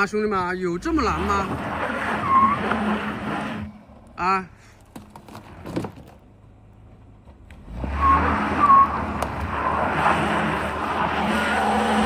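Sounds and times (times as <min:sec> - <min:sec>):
tyres spinning and squealing: 0:00.0 - 0:06.4, 0:07.6 - 0:12.0
car engine revving hard: 0:00.9 - 0:03.8, 0:07.6 - 0:12.0.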